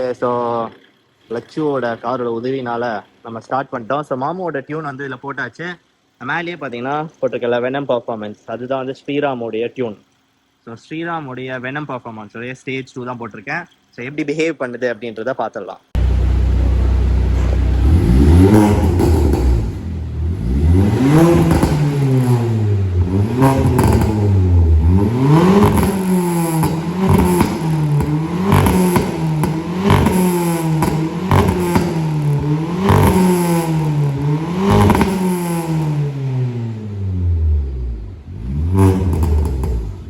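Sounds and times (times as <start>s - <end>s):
car engine revving: 16.0s - 40.0s
exhaust cracks: 16.0s - 40.0s.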